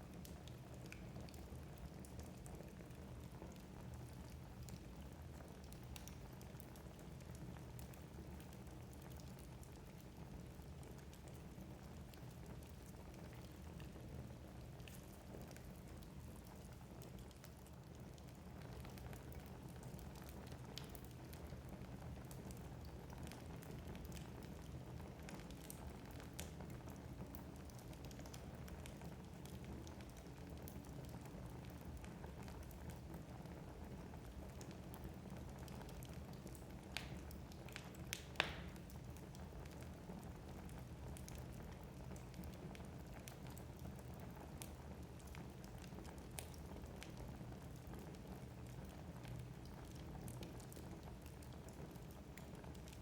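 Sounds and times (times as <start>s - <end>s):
wood fire crackling and popping: 0.0s - 53.0s
sharp pop of fire: 38.2s - 38.8s.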